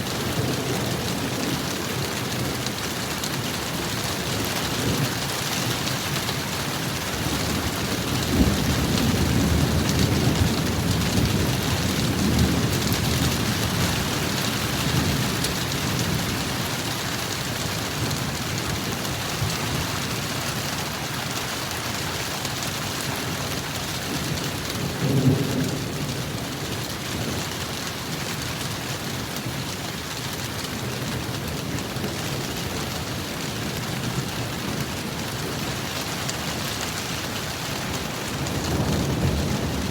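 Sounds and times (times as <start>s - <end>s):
heavy rain: 0.0s - 39.9s
thunder rumbling: 37.2s - 39.9s.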